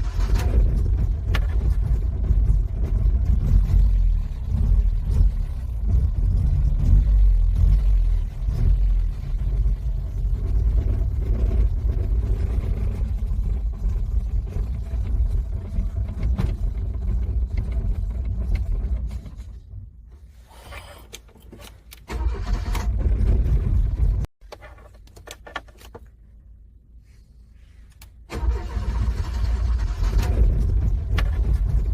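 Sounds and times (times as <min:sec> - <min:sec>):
car engine cranking on starter: 0:00.0 - 0:03.7, 0:21.9 - 0:24.0, 0:28.2 - 0:31.9.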